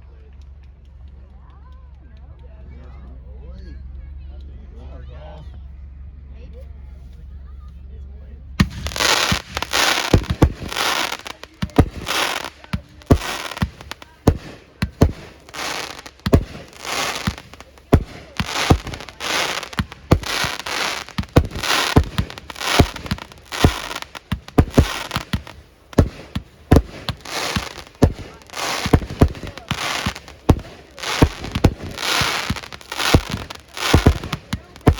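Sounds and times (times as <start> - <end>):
fireworks bangs: 8.6 - 34.9.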